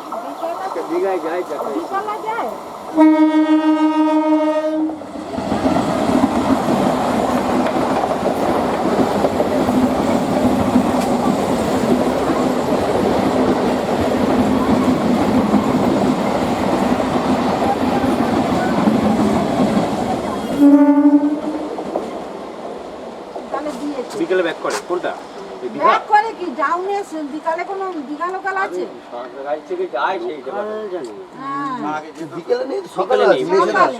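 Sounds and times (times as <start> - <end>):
train horn: 2.9 - 5.0, 20.4 - 21.8
train wheels rumbling on rails: 4.9 - 28.5.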